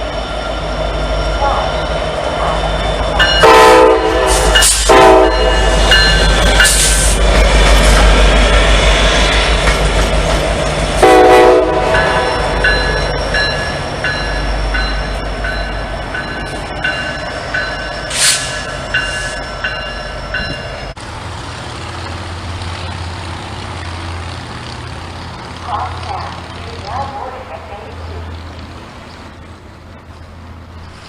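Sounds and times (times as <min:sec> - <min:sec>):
freight train rumbling past: 0:00.0 - 0:31.0
train horn blast: 0:03.3 - 0:05.8, 0:11.0 - 0:12.6
bell dinging: 0:12.0 - 0:21.0.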